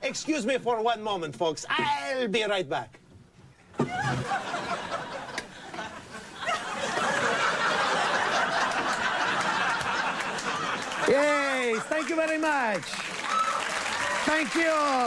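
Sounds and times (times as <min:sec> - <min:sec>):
studio audience laughing: 0:03.8 - 0:12.2.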